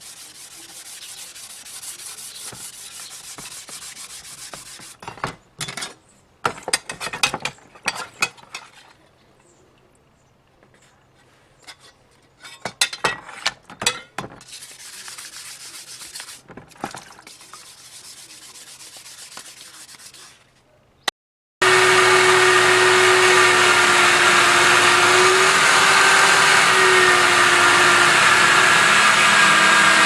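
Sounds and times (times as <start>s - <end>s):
sandpaper scraping on metal: 0.0s - 5.1s, 14.4s - 16.6s, 17.2s - 20.6s.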